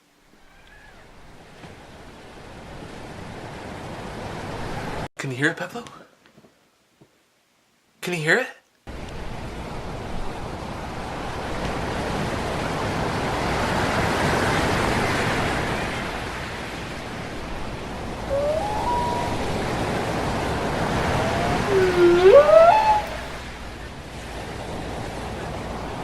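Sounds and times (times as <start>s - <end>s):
ocean waves on shore: 1.1s - 5.0s, 9.2s - 26.0s
short gliding cries: 17.9s - 23.6s.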